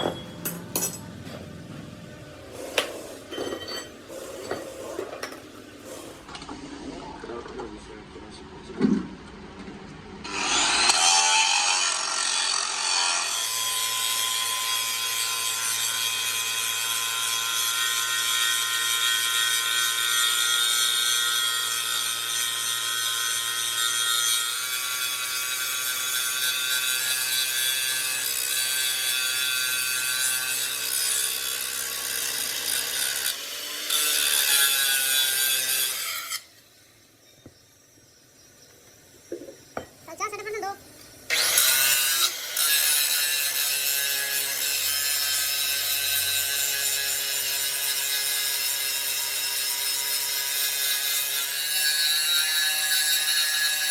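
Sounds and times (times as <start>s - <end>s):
power tool rasping whine: 10.2s - 39.8s.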